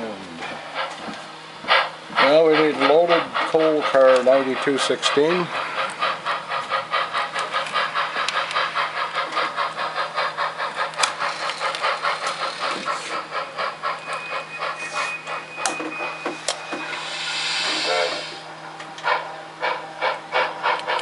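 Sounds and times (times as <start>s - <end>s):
model steam locomotive chuffing: 0.0s - 21.0s
thin high whine: 14.0s - 18.5s.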